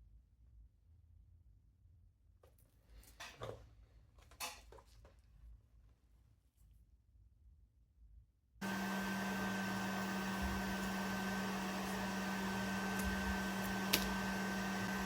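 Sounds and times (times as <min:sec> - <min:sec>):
electric blower running: 0:08.6 - 0:15.0.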